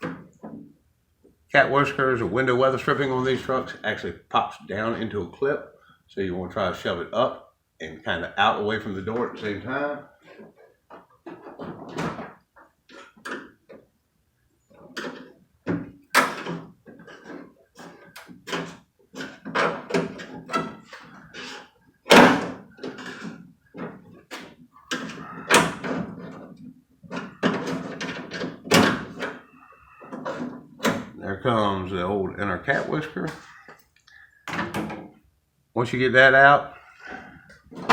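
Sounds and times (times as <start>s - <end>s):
knocks and clunks of weatherstrip: 10.2s - 13.9s, 14.7s - 31.2s, 37.0s - 37.9s.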